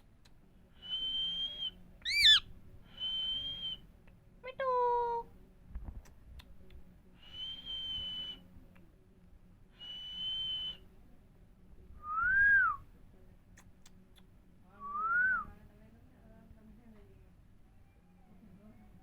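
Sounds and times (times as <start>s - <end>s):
parrot whistling: 0.8s - 3.8s.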